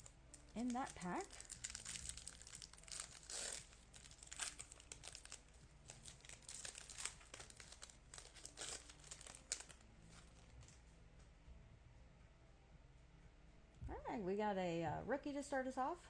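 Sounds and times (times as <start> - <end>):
plastic foil wrapper crinkling: 0.0 - 10.8.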